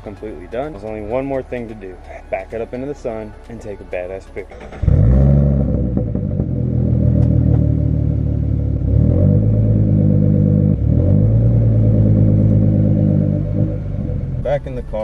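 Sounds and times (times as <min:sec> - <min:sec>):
car engine running loud: 0:04.7 - 0:15.0.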